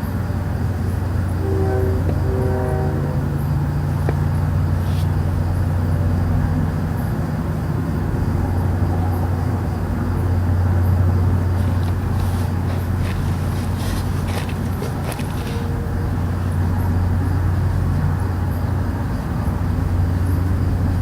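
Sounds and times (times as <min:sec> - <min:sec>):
low droning hum: 0:00.0 - 0:21.0
short horn-like tone: 0:01.4 - 0:03.4.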